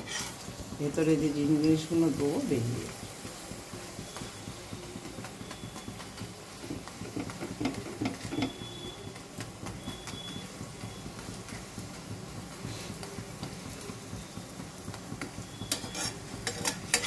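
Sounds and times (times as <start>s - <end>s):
metal spatula scraping a pan: 0.0s - 0.5s, 15.6s - 17.0s
flatbread sizzling in oil: 0.0s - 17.0s.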